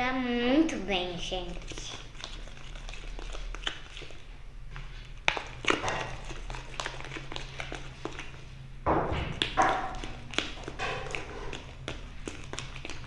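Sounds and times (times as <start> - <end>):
slime squelching in plastic pot: 0.0 - 13.0.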